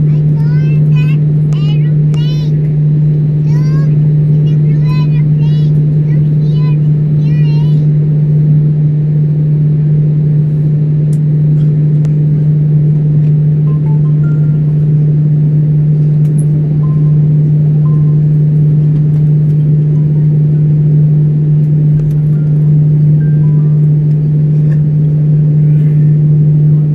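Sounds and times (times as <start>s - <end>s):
loud low cabin hum: 0.0s - 26.9s.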